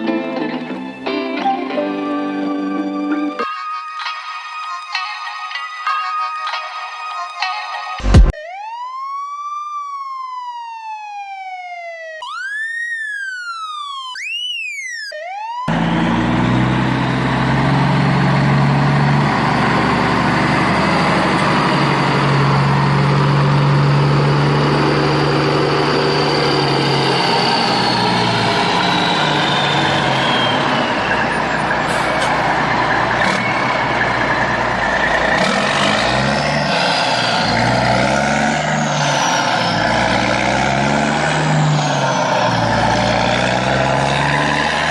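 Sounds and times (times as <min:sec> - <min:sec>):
vehicle engine humming: 0:00.0 - 0:03.5, 0:08.0 - 0:08.3, 0:15.7 - 0:44.9
electronic siren wailing: 0:01.1 - 0:16.1, 0:19.2 - 0:44.9.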